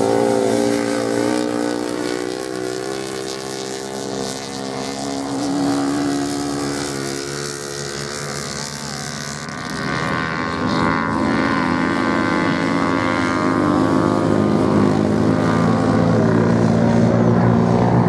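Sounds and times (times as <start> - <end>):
motorcycle engines at high revs: 0.0 - 18.0.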